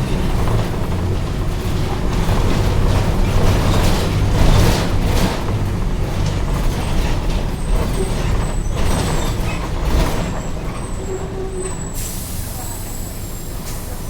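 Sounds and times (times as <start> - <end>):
bus diesel engine droning: 0.0 - 14.0
short air hisses: 12.0 - 14.0.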